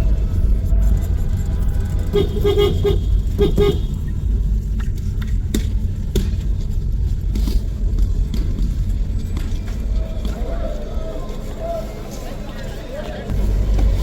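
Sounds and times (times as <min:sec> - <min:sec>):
street traffic rumble: 0:00.0 - 0:14.0
car horns short beeps: 0:02.0 - 0:04.1.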